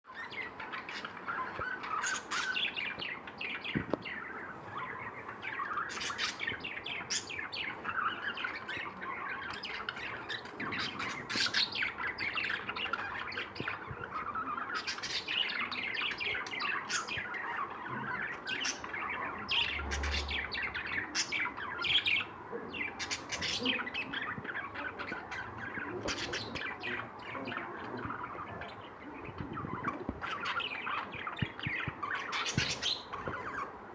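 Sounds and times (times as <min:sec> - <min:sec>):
lovebirds chirping and chattering: 0:00.0 - 0:33.9.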